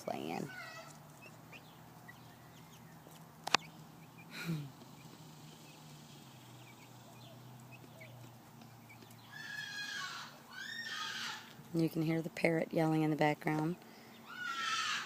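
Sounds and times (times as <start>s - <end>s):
cockatoo screeching: 9.3s - 11.5s, 14.2s - 15.0s.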